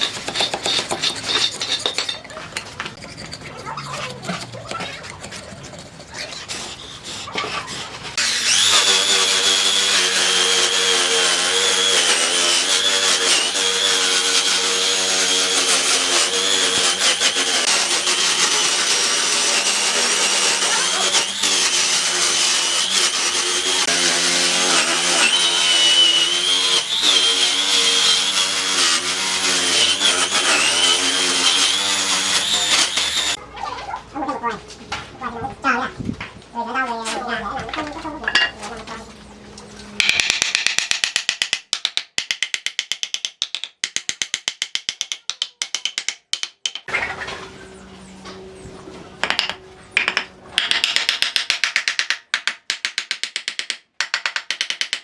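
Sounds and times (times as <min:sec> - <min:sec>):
power tool whining on wood: 0:06.7 - 0:33.4.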